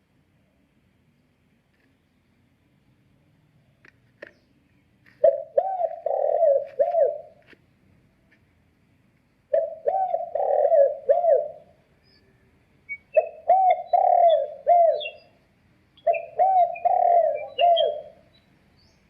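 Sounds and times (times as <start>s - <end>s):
recorded bird cooing from speaker: 5.1s - 7.6s, 9.5s - 15.4s, 16.0s - 19.0s.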